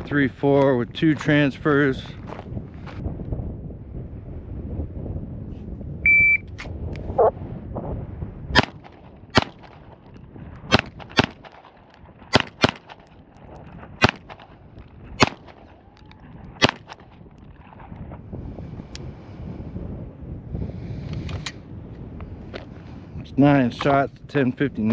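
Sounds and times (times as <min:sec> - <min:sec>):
shot timer beep: 0:06.1 - 0:06.5
pistol shots: 0:08.6 - 0:10.0, 0:10.7 - 0:13.1, 0:14.0 - 0:15.8, 0:16.5 - 0:17.2.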